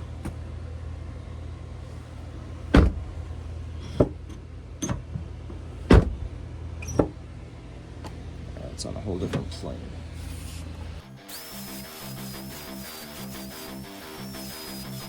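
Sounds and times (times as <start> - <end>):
steady low hum: 0.0 - 15.0
car door shutting thuds: 2.7 - 3.2, 5.9 - 7.2.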